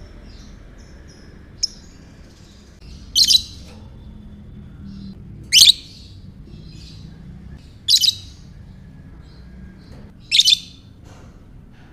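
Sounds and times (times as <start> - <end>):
lovebird shrill calls: 3.1 - 3.6, 7.9 - 8.4, 10.3 - 10.8.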